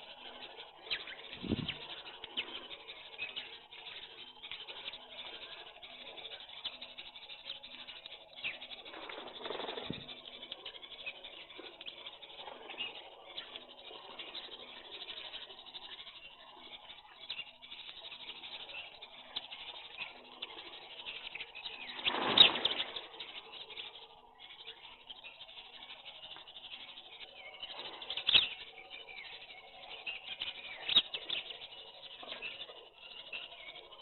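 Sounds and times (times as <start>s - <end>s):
birds chirping: 0.0s - 34.0s
wing flapping: 1.0s - 6.4s, 8.5s - 10.9s, 18.0s - 23.6s.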